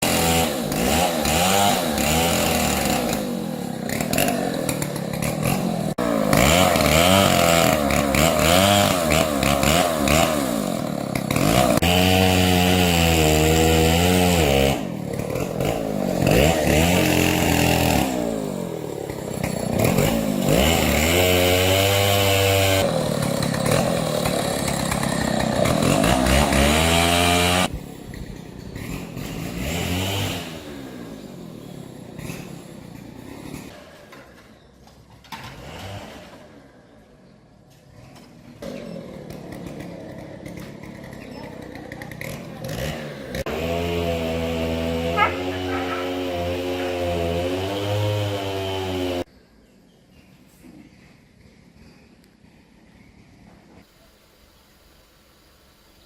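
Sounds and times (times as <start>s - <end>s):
chainsaw cutting wood: 0.0s - 34.2s, 35.3s - 36.7s, 38.1s - 49.3s.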